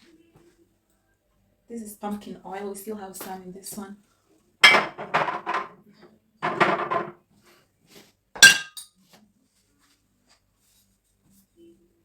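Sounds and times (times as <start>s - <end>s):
glass bottles clattering: 4.6s - 5.8s, 6.4s - 7.2s, 8.4s - 8.8s
sharp glass clink: 8.4s - 8.9s.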